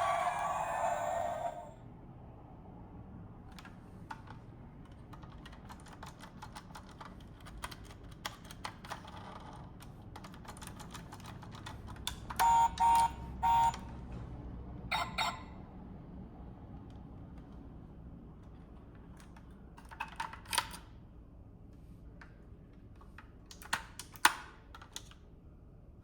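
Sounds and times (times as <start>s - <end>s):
short loud beeps: 12.4s - 13.8s, 14.9s - 15.5s.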